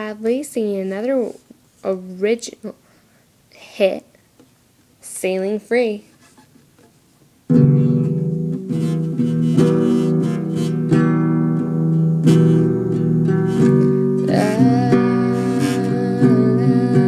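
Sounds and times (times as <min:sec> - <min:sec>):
acoustic guitar strumming chords: 0:07.5 - 0:17.0.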